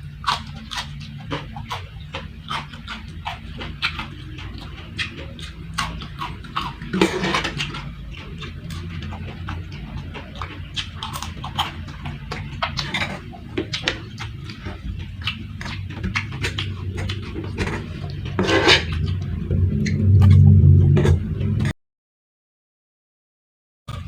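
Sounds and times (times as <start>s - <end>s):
chewing crunchy food: 0.0s - 21.7s
low hum: 0.0s - 21.8s
spoon scraping on plate: 6.9s - 7.8s, 17.5s - 19.1s.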